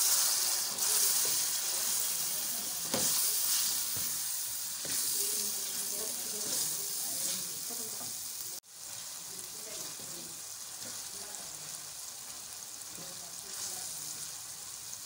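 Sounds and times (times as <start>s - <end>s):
food sizzling in a pan: 0.0s - 15.0s
wooden spoon stirring: 0.4s - 11.1s.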